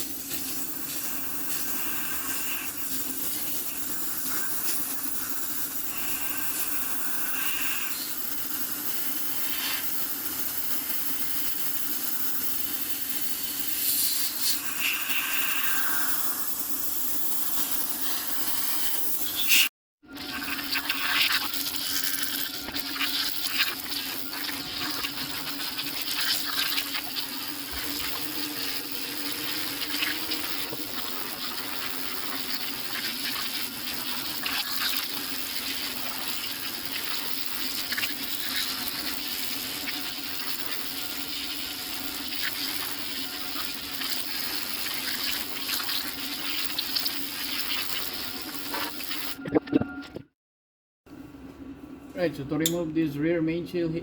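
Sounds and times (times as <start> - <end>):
steam cleaner hissing: 0.0 - 19.7, 22.8 - 49.3.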